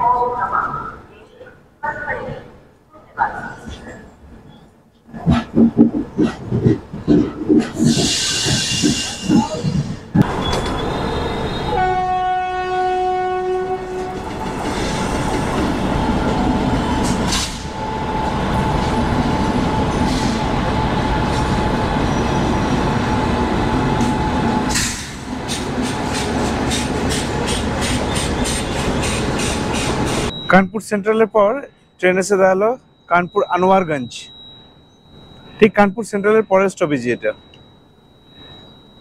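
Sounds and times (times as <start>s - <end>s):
wheels rumbling on rail: 3.5s - 30.5s
clickety-clack over rail joints: 5.1s - 10.9s, 13.9s - 15.8s, 24.0s - 30.3s
locomotive horn: 10.7s - 14.4s.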